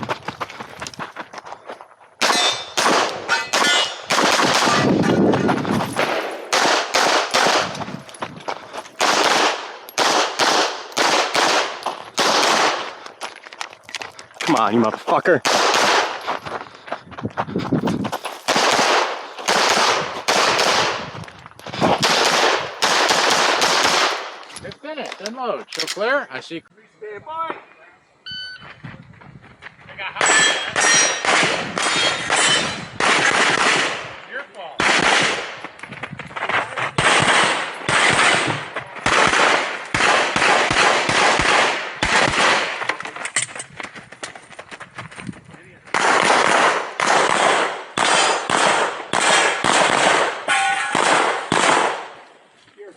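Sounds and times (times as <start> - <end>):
pistol shots with ringing echo: 2.2 - 5.0, 5.9 - 7.8, 9.0 - 13.0, 15.4 - 16.2, 18.4 - 21.1, 22.0 - 24.4, 30.2 - 35.6, 37.0 - 42.8, 45.9 - 52.2.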